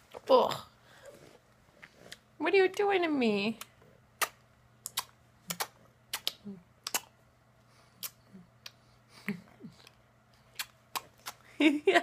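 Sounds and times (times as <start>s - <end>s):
person making kissy noises: 4.2s - 7.1s, 8.0s - 8.8s, 9.8s - 11.5s.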